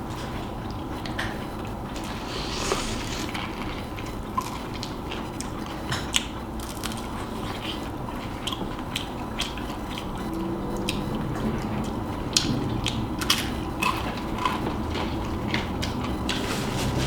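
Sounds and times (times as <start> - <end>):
person chewing crunchy food: 1.9 - 5.6.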